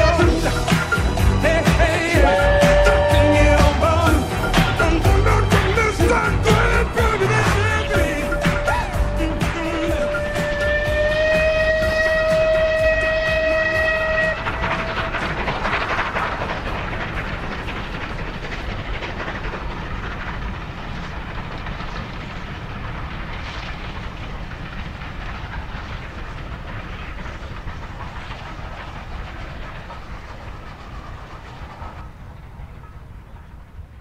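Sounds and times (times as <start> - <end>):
train rumbling on track: 0.0 - 34.0
wheels clacking over rail joints: 0.0 - 34.0.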